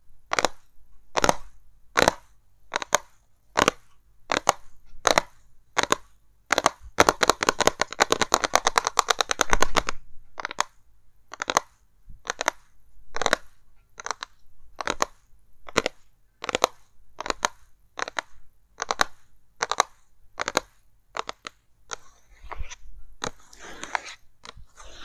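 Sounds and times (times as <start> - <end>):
crackly strokes on box packaging: 21.2 - 25.0.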